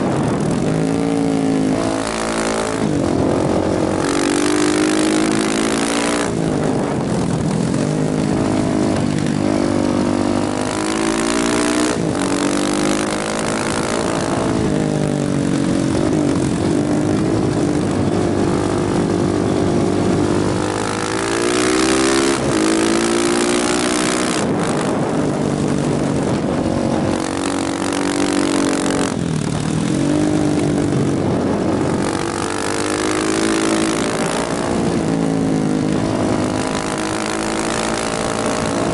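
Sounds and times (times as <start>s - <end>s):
motorcycle engine accelerating: 0.0s - 38.9s
wind rush: 0.0s - 38.9s.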